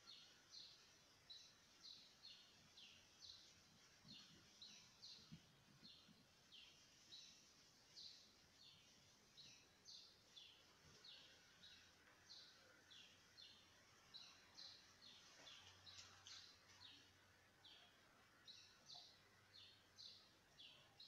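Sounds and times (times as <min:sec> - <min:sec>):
small bird chirping: 0:00.0 - 0:21.0.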